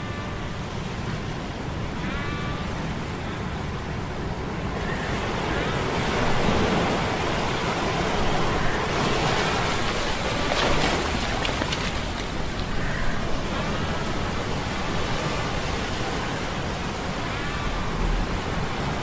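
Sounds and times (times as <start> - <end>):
waves surging: 0.0 - 19.0.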